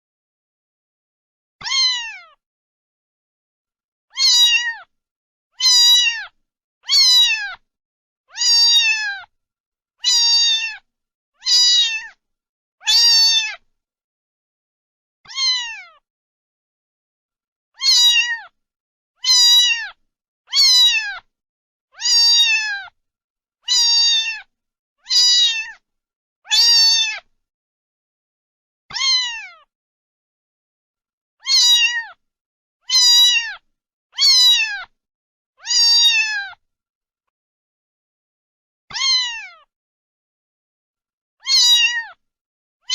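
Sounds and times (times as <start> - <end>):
cat meowing: 1.6 - 2.4, 4.1 - 4.9, 5.6 - 7.6, 8.3 - 9.3, 10.0 - 12.2, 12.8 - 13.6, 15.3 - 16.0, 17.8 - 18.6, 19.2 - 21.3, 22.0 - 23.0, 23.6 - 25.8, 26.5 - 27.3, 28.9 - 29.7, 31.4 - 32.2, 32.8 - 35.0, 35.6 - 36.6, 38.9 - 39.7, 41.4 - 42.2.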